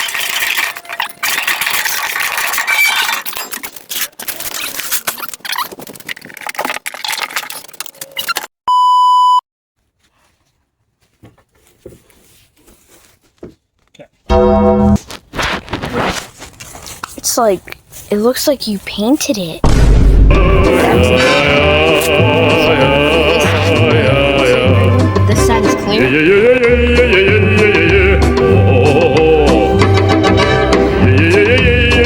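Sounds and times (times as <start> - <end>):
short electronic beep: 8.7 - 9.4.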